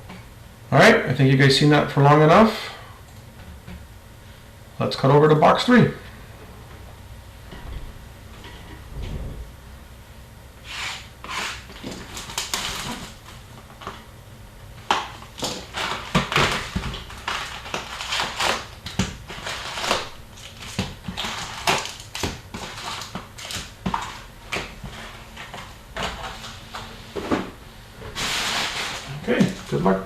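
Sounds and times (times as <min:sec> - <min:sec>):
card wrappers crinkling and ripping: 0:11.7 - 0:13.4, 0:14.9 - 0:25.1, 0:28.2 - 0:30.0.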